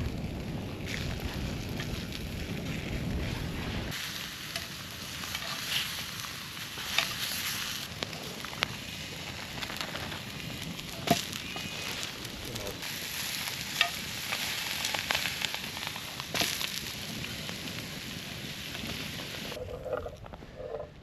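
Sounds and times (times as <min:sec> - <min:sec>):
low rumble: 0:00.0 - 0:04.0
sausages and onions sizzling: 0:00.0 - 0:19.6
fire pops and crackles: 0:00.0 - 0:21.0.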